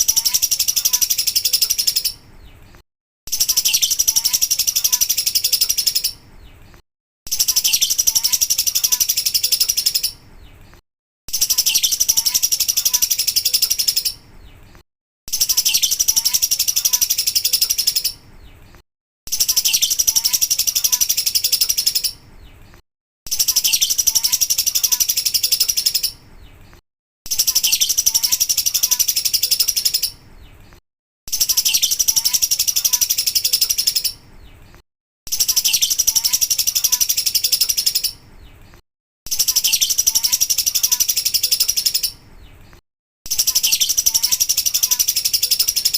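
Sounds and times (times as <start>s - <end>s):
lovebird chattering trill: 0.0s - 2.2s, 3.3s - 6.2s, 7.3s - 10.2s, 11.3s - 14.3s, 15.3s - 18.3s, 19.3s - 22.2s, 23.3s - 26.2s, 27.3s - 30.2s, 31.3s - 34.3s, 35.3s - 38.2s, 39.3s - 42.2s, 43.3s - 45.9s.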